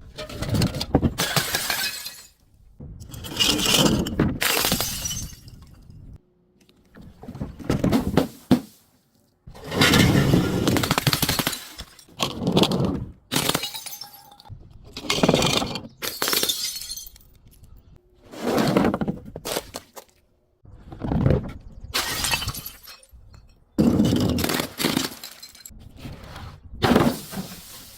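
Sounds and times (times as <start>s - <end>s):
glass crunching and shattering: 1.2s - 2.4s, 4.4s - 5.8s, 9.8s - 12.1s, 13.4s - 14.5s, 15.4s - 17.5s, 22.0s - 25.7s.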